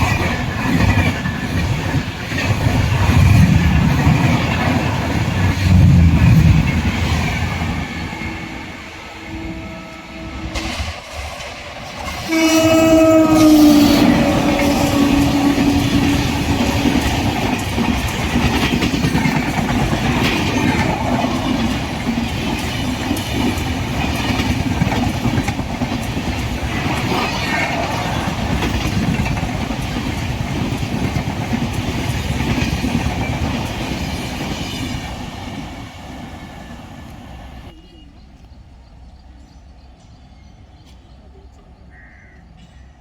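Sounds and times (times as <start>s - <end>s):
clickety-clack over rail joints: 0.0s - 8.0s, 10.5s - 36.5s
train wheels rushing on rail: 0.0s - 41.8s.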